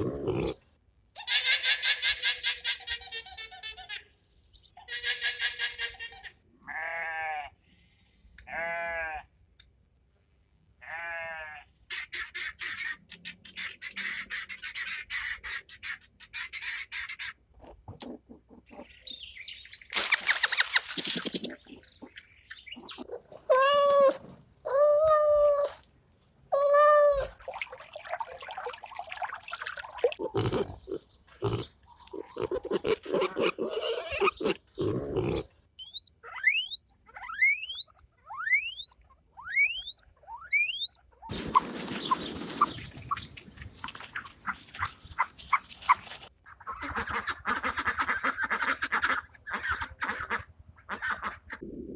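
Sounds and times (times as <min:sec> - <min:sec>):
animal chirring: 0:20.0 - 0:24.0, 0:30.1 - 0:41.0
drawn-out wavering animal calls: 0:35.8 - 0:41.0
quick rising chirps: 0:35.8 - 0:41.0.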